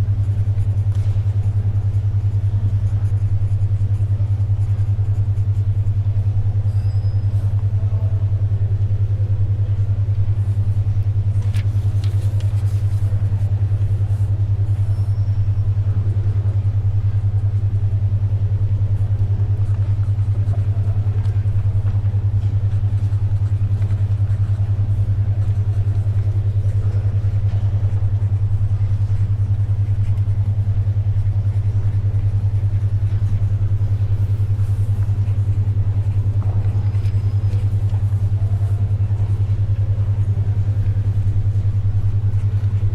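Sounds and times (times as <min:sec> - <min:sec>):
loud low pulsing hum: 0:00.0 - 0:42.9
paper rustling: 0:11.3 - 0:13.6.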